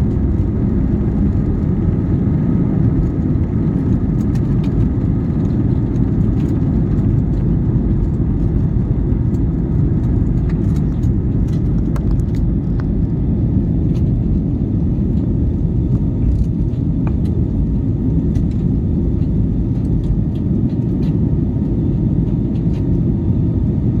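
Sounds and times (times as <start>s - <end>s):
airliner engine rumble in cabin: 0.0s - 24.0s.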